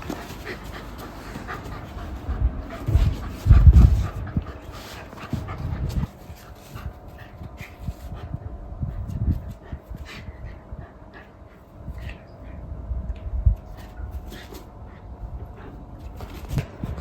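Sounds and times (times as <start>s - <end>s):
low thumps and rustles: 0.0s - 10.3s.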